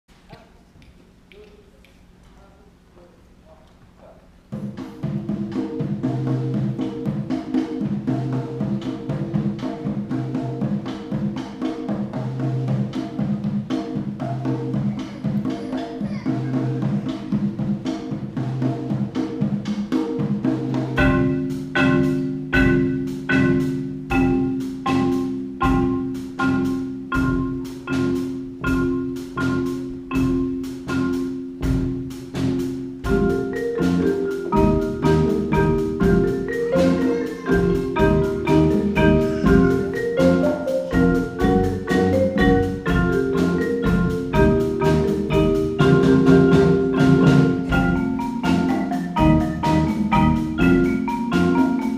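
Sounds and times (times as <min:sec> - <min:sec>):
marimba played with mallets: 0:04.5 - 0:51.9.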